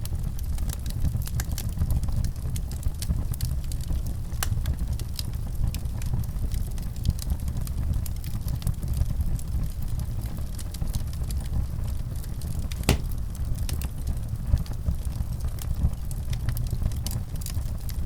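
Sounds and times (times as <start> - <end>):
wood fire crackling: 10.9 - 18.0
fire popping: 12.7 - 13.5.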